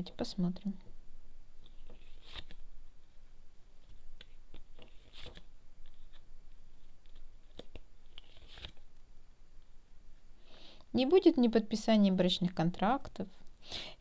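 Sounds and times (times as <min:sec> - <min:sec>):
paper cards rustling and snapping: 0:01.6 - 0:02.8, 0:03.8 - 0:09.0.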